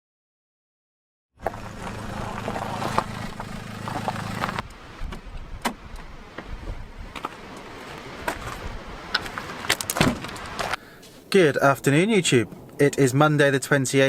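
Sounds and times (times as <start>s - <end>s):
car engine idling: 1.4s - 4.6s.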